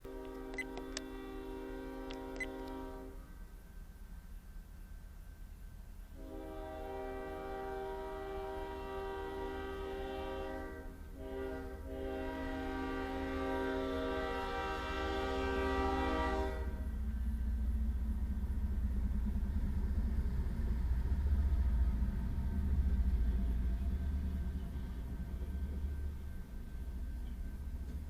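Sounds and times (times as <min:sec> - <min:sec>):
locomotive horn: 0:00.0 - 0:03.3, 0:06.1 - 0:16.9
train rumbling: 0:00.0 - 0:28.0.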